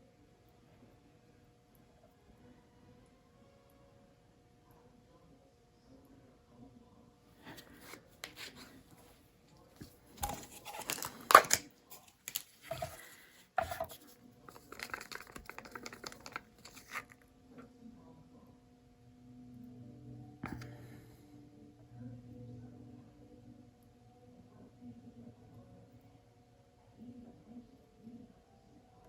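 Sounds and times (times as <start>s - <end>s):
tearing and crinkling handling noise: 9.8s - 17.2s.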